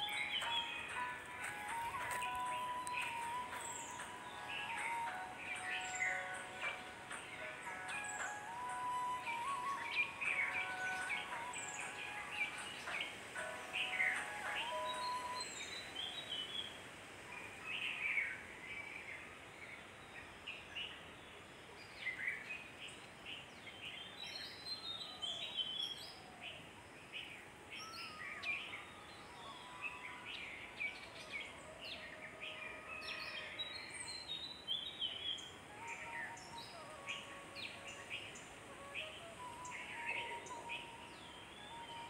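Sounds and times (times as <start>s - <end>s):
birds chirping and whistling: 0.0s - 16.5s, 27.2s - 42.0s
faint outdoor hiss: 0.0s - 42.0s.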